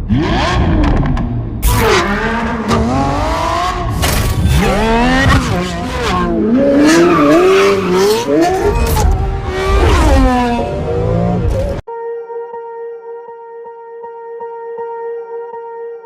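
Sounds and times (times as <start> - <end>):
sports car engine revving: 0.0 - 11.8.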